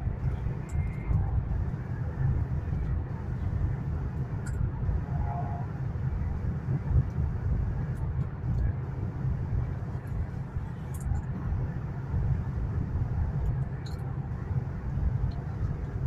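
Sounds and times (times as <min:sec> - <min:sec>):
train cabin rumble and hiss: 0:00.0 - 0:16.0.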